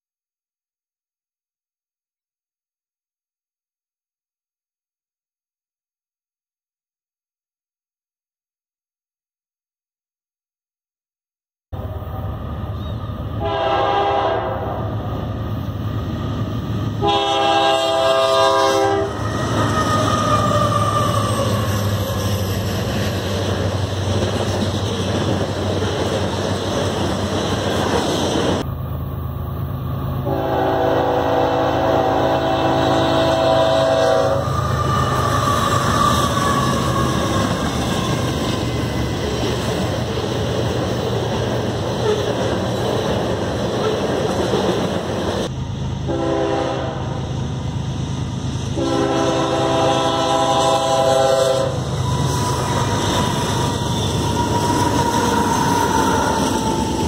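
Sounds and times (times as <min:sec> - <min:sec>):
diesel trains rumbling: 0:11.8 - 0:57.0
locomotive air horn: 0:13.4 - 0:15.0, 0:17.0 - 0:21.8, 0:30.2 - 0:37.2, 0:46.1 - 0:47.2, 0:48.8 - 0:56.5.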